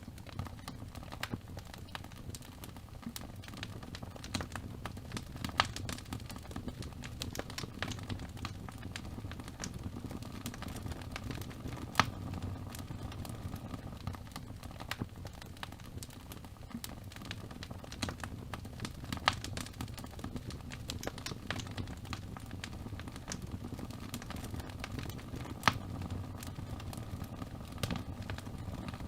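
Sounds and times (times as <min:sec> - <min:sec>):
fire crackling and popping: 0:00.0 - 0:29.0
low rumble of flames: 0:00.0 - 0:29.0.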